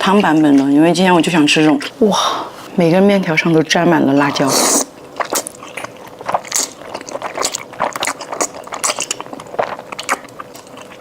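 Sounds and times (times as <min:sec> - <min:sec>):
noodles being chewed: 0:04.1 - 0:11.0.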